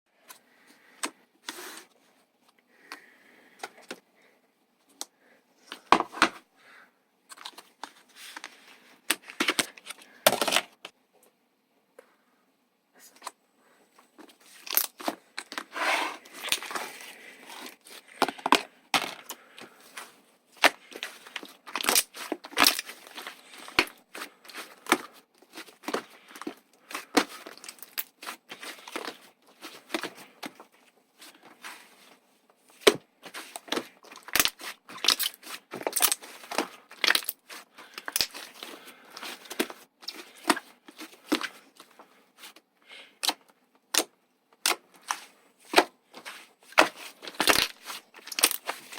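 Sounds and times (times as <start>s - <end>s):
slime squishing by hand: 14.3s - 42.6s.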